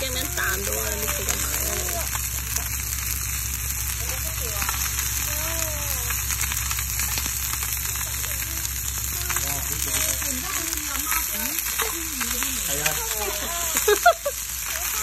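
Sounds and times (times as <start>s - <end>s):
food frying with crackles: 0.0s - 15.0s.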